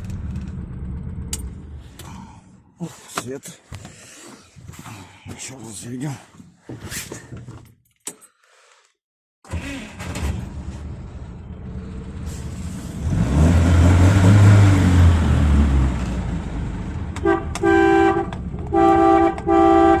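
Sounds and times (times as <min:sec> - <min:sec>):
car engine starting and revving: 0:09.5 - 0:17.2
car horn: 0:17.2 - 0:20.0.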